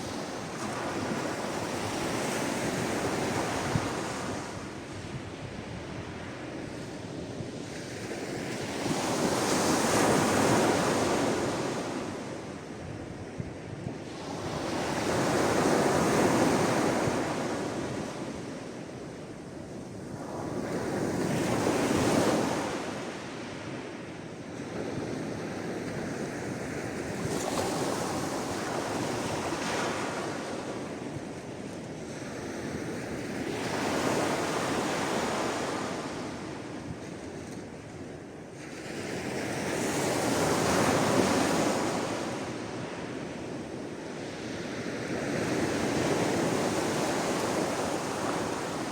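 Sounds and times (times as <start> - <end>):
sea waves washing ashore: 38.6 - 48.9.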